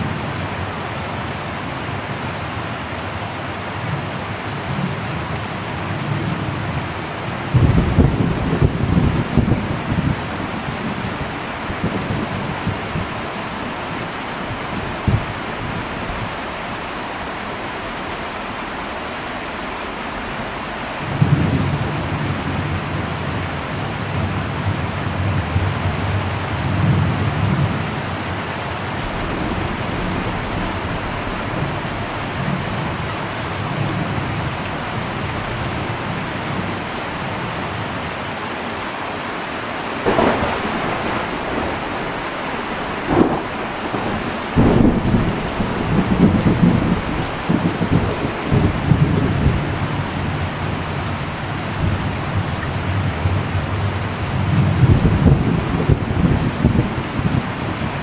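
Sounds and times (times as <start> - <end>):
heavy rain on metal roof: 0.0 - 58.0
low rumble of thunder: 4.6 - 16.9, 21.0 - 37.4, 39.8 - 58.0
sharp thunderclap: 7.5 - 13.4, 28.6 - 34.6, 39.8 - 51.0.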